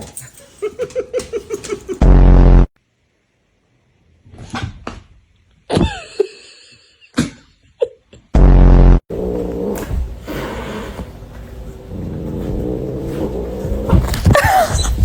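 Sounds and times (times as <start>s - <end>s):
loud flat buzz: 8.4s - 9.0s
cat growling: 9.1s - 15.0s.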